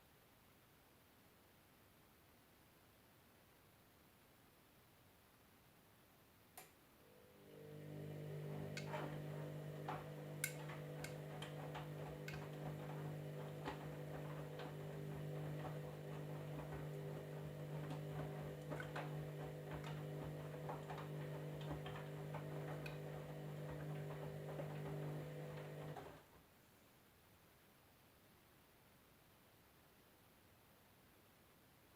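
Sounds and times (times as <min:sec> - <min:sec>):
washing machine motor hum: 0:07.0 - 0:26.3.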